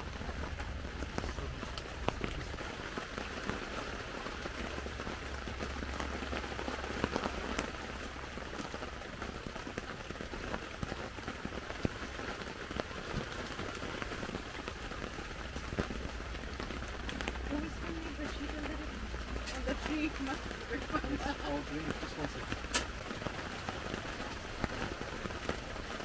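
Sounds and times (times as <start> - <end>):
rain falling on a tent: 0.0 - 26.0.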